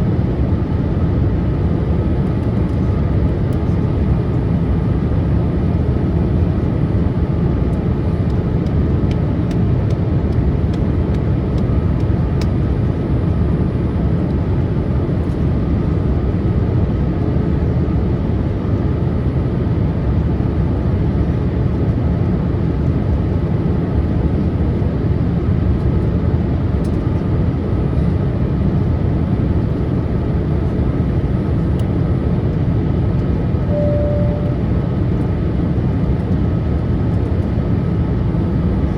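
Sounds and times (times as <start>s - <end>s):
airliner cabin airflow and engine: 0.0s - 38.9s
brief tone: 33.7s - 35.2s
faint steady whine: 33.7s - 35.3s.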